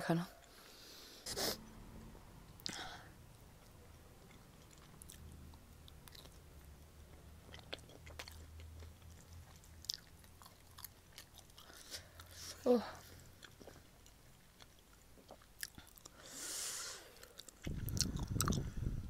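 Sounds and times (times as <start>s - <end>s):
person chewing and biting: 3.6s - 12.4s, 13.4s - 16.2s, 17.1s - 18.9s
wet mouth clicks: 17.2s - 18.8s.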